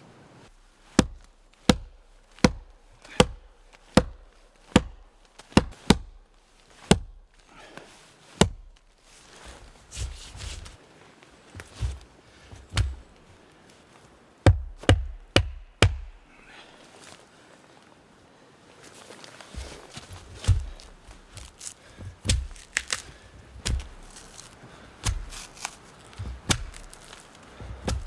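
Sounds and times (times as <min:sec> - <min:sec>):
crunching and rustling: 0:00.5 - 0:14.3, 0:18.7 - 0:28.0
axe chopping wood: 0:00.9 - 0:08.9, 0:12.6 - 0:13.1, 0:14.5 - 0:16.3, 0:19.6 - 0:28.0.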